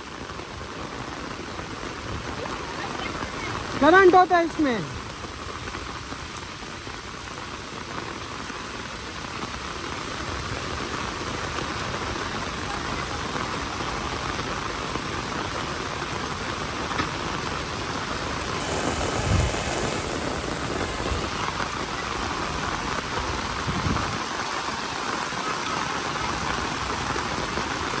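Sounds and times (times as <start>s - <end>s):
steady rain: 0.0s - 28.0s.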